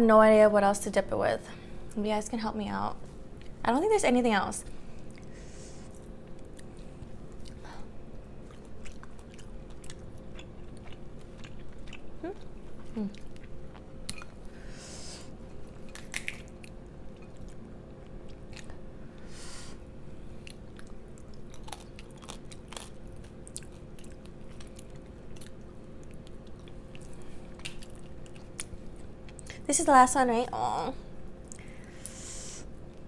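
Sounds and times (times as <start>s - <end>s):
chewing and biting food: 5.9s - 14.6s, 15.3s - 19.0s, 20.3s - 29.6s.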